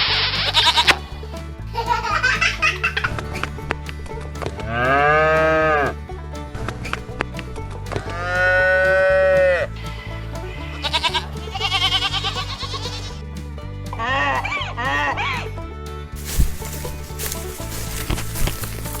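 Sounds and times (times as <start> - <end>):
background music with bass line: 0.0 - 19.0
farm animal mooing: 4.6 - 6.0, 7.9 - 13.2, 16.2 - 19.0.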